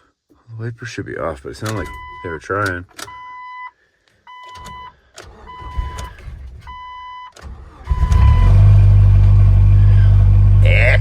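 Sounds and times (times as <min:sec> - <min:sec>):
engine cranking and idling: 0:07.4 - 0:10.7.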